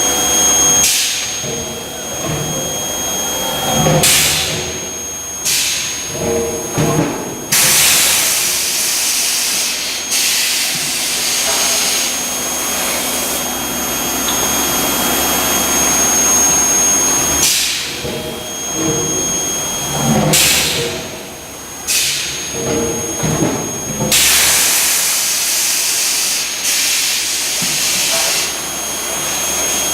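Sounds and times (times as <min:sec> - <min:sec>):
high-pitched whine: 0:00.0 - 0:29.9
machinery hissing: 0:07.5 - 0:17.9.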